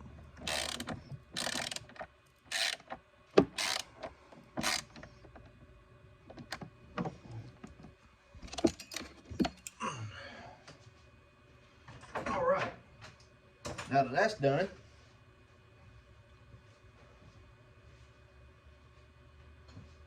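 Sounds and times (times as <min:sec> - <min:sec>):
hand ratchet turning: 0:00.4 - 0:03.0, 0:03.6 - 0:03.9, 0:04.6 - 0:04.9
tools clicking and knocking: 0:00.4 - 0:05.1.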